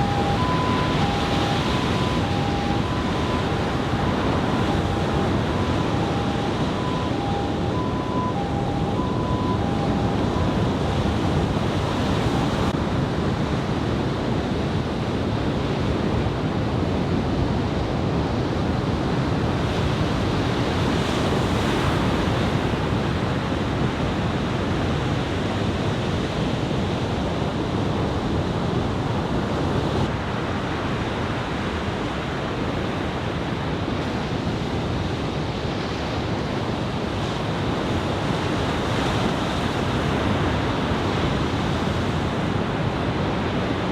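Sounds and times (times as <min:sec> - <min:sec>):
two-tone beeping: 0:00.0 - 0:12.5
ocean surf breaking: 0:00.0 - 0:12.7
wind buffeting microphone: 0:00.0 - 0:24.6.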